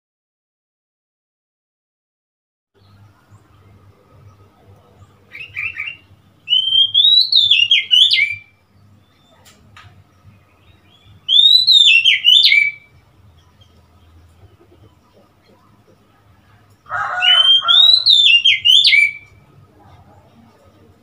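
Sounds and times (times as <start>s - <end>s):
magpie-robin singing: 2.8s - 19.6s.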